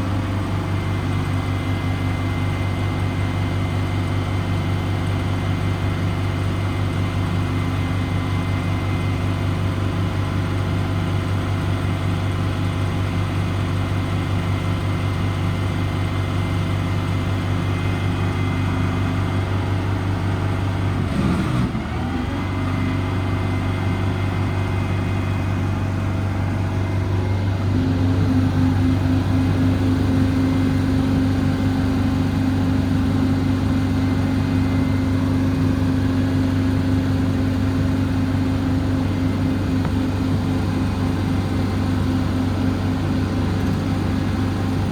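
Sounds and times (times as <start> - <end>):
diesel truck engine idling: 0.0 - 21.1, 21.8 - 44.9.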